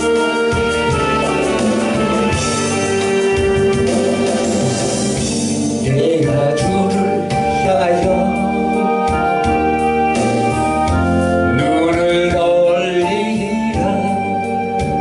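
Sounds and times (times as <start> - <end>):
organ chords: 0.0 - 15.0
person singing: 5.8 - 9.5, 11.4 - 15.0.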